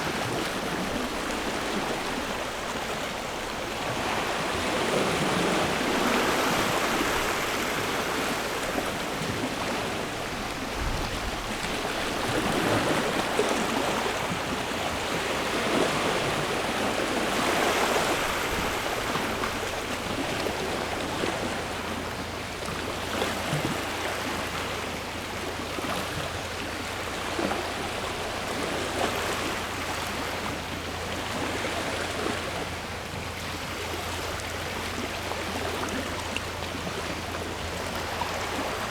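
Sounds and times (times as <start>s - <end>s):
sea waves washing onto shore: 0.0s - 38.9s.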